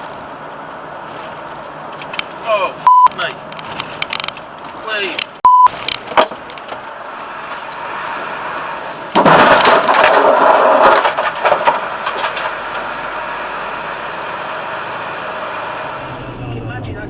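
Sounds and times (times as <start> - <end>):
loud cracking crash: 9.1 - 13.9
car cabin road noise: 10.6 - 17.0.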